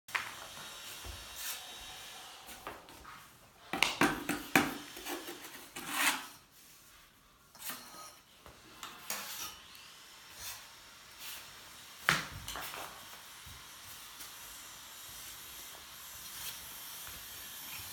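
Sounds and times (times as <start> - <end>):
scraping and rubbing stone: 4.9 - 6.4.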